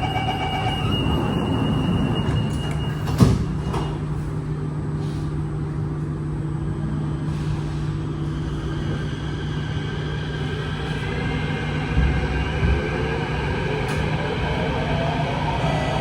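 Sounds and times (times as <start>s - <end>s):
door warning tone: 0.0s - 4.0s
sliding doors shutting: 0.0s - 4.2s
train low hum: 0.0s - 16.0s.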